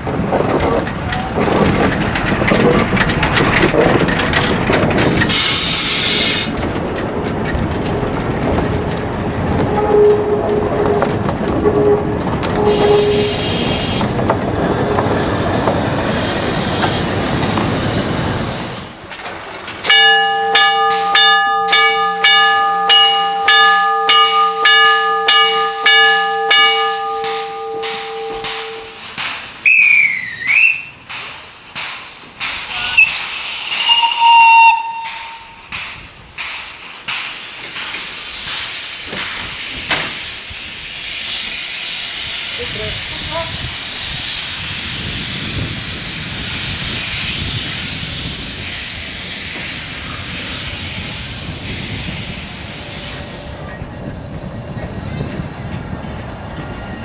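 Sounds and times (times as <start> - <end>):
locomotive exhaust chuffs: 0.4 - 19.1
steam hissing: 4.8 - 6.6, 11.7 - 19.1, 25.5 - 53.8
steam whistle: 9.7 - 14.0, 20.0 - 29.0, 32.7 - 35.6.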